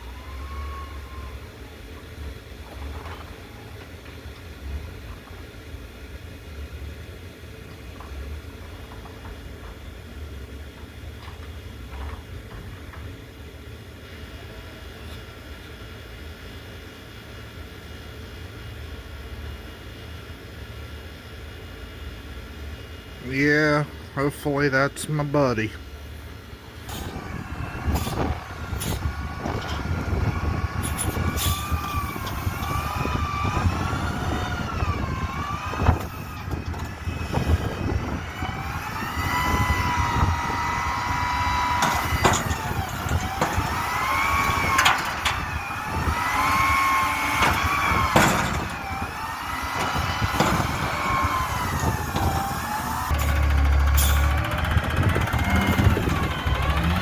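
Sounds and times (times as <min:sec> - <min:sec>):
diesel engine rumble: 0:00.0 - 0:57.0
hydraulic whine: 0:23.2 - 0:57.0
metal clanks: 0:26.8 - 0:57.0.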